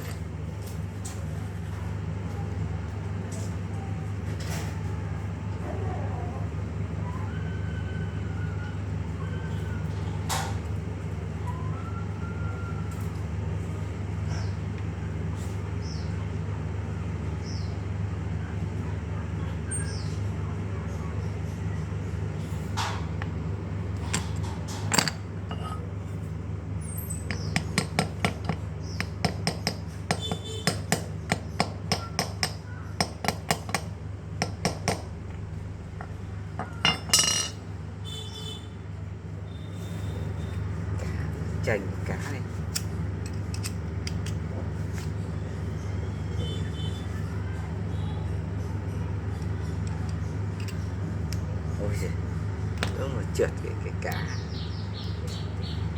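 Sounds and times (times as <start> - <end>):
metal parts tapped and clinked: 0.0 - 0.2, 24.0 - 25.8, 27.2 - 31.7, 36.0 - 37.6, 42.7 - 44.5, 49.3 - 51.5, 52.8 - 53.0
steady low hum: 4.9 - 55.9.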